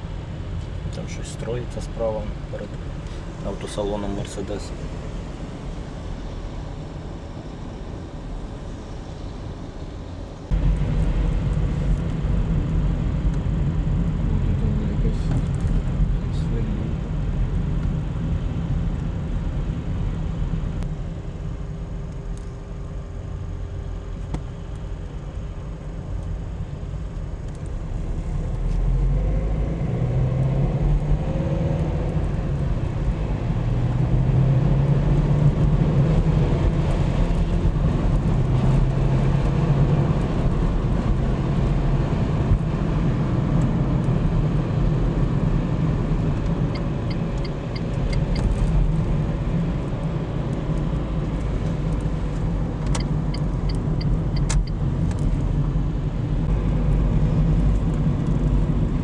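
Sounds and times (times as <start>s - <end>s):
car engine: 0.0s - 59.0s
road noise: 0.0s - 59.0s.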